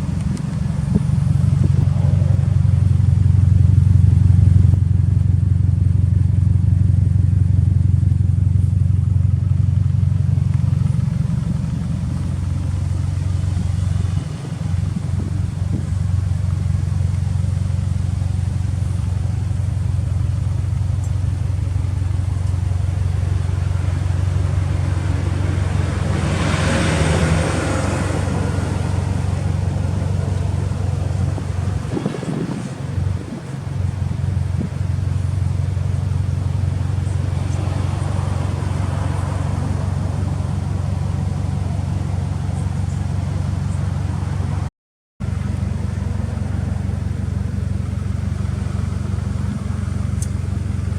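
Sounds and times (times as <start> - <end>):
car engine idling: 0.0 - 50.9
rushing hiss: 10.4 - 42.0.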